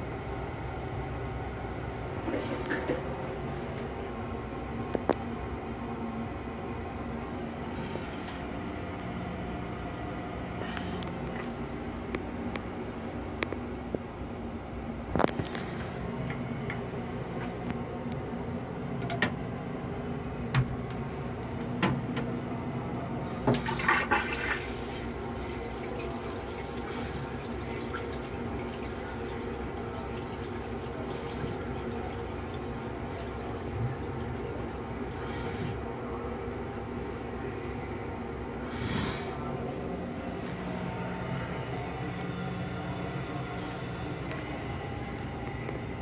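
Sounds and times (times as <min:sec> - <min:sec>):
railcar hum: 0:00.0 - 0:28.8, 0:29.4 - 0:46.0
toilet flush rushing water: 0:23.3 - 0:40.4.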